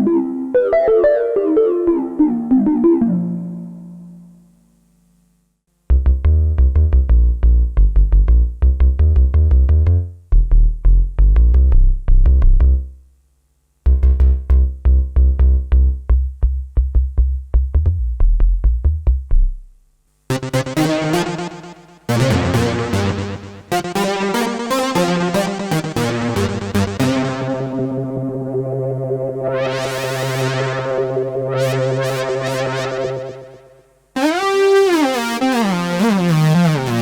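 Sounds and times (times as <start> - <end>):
staccato synth bass notes: 13.9 - 37.0
bright harsh synth: 20.3 - 37.0.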